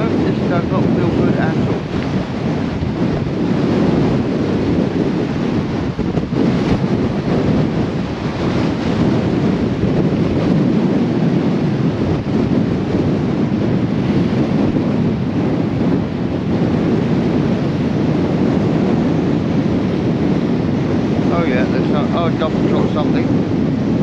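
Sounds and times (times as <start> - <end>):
storm wind buffeting microphone: 0.0 - 24.0.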